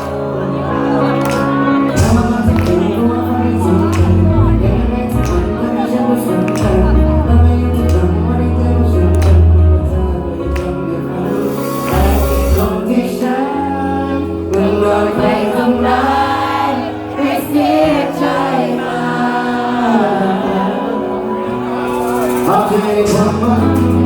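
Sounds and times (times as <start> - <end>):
live band playing: 0.0 - 24.0
person singing: 0.0 - 24.0.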